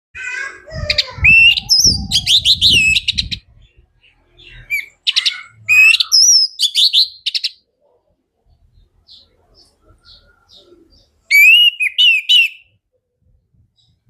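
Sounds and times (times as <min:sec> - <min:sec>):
thrush singing whistled notes: 0:01.2 - 0:03.5, 0:04.5 - 0:07.6, 0:10.1 - 0:12.7.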